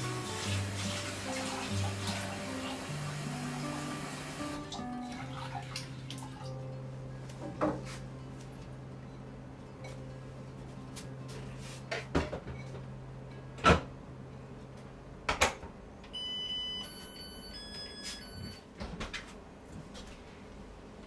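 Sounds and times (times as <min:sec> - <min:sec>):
electronic beeping tune: 0:16.2 - 0:18.6.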